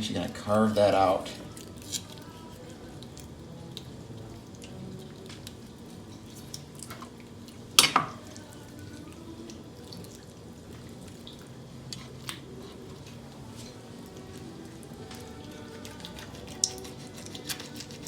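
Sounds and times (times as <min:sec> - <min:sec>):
wet clicks and squishes: 0:11.0 - 0:13.2.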